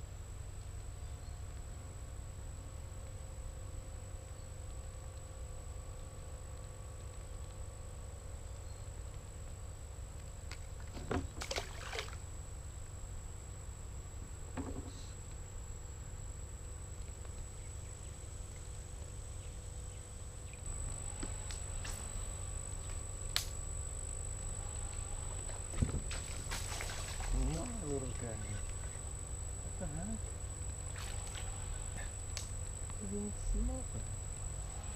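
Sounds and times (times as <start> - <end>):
steady low rumble: 31.6 - 34.9.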